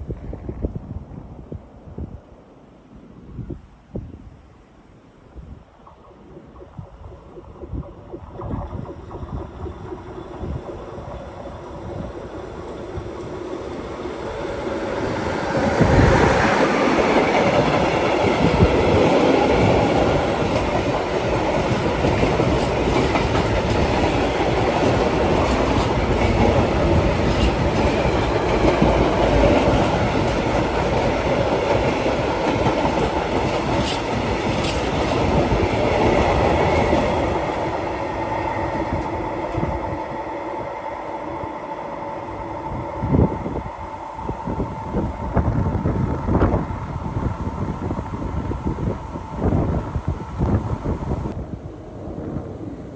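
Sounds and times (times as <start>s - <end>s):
train rumble and wheels on rails: 0.0s - 52.9s.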